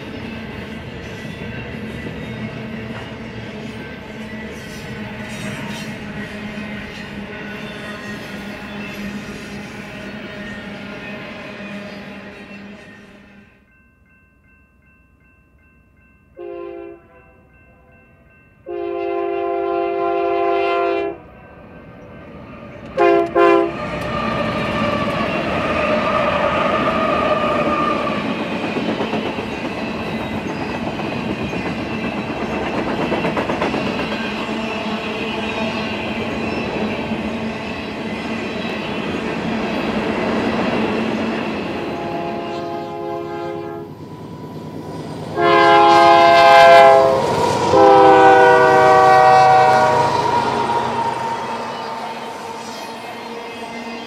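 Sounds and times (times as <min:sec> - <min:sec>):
freight train wheels rumbling: 0:00.0 - 0:13.2, 0:18.2 - 0:54.0
locomotive horn blasts: 0:16.4 - 0:17.4, 0:18.6 - 0:21.3, 0:23.0 - 0:23.8, 0:41.9 - 0:43.9, 0:45.4 - 0:51.9.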